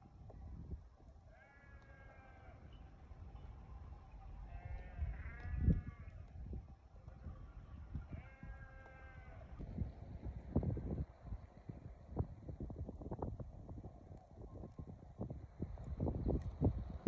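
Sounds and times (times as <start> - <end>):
livestock bleating: 1.3 - 2.6, 4.5 - 6.2, 8.1 - 9.5.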